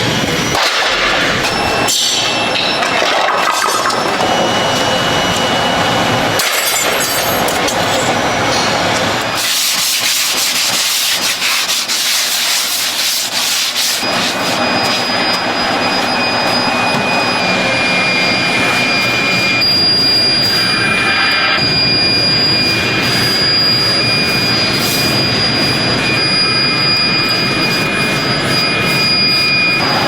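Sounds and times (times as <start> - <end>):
sanding and rubbing: 9.4 - 15.2, 22.6 - 25.9, 26.7 - 30.0.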